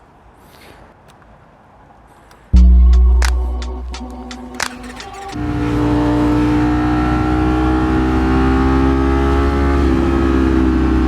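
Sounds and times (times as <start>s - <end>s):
motorcycle engine running: 2.6s - 8.6s.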